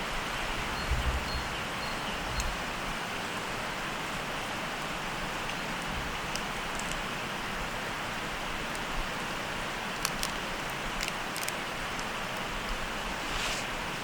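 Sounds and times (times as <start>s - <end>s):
steady hissing noise: 0.0s - 14.0s
sharp crackling pops: 9.9s - 12.8s.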